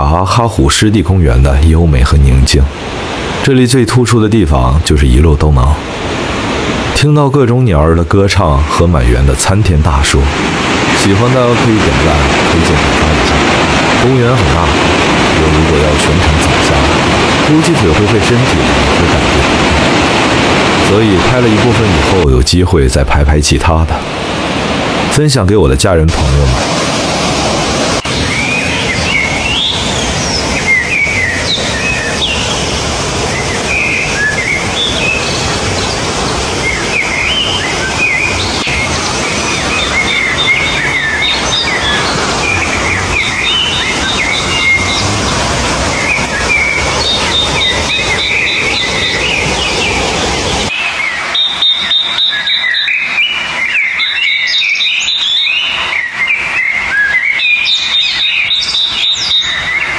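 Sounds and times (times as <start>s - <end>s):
flowing water: 0.0s - 59.9s
small birds chirping and singing: 28.0s - 59.9s
high pulsing bird note: 36.7s - 53.0s.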